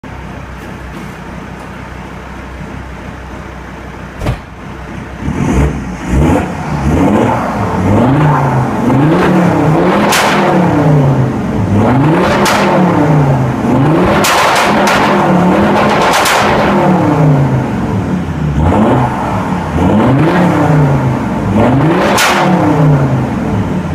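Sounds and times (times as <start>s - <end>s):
diesel car engine idling: 0.0s - 5.2s
exhaust bangs: 4.1s - 23.9s
sharp knock: 4.2s - 4.6s
car engine revving hard: 5.1s - 23.9s.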